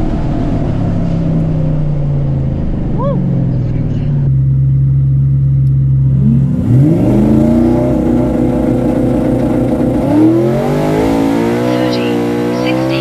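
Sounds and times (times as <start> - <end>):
truck engine revving and launching: 6.1 - 13.0.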